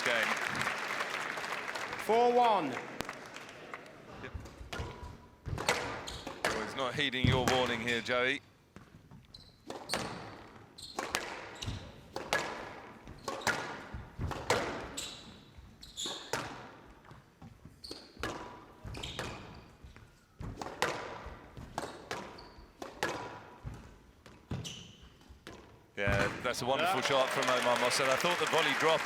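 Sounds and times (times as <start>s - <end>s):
squash ball hits: 4.6s - 7.9s, 11.0s - 15.0s, 20.4s - 23.8s.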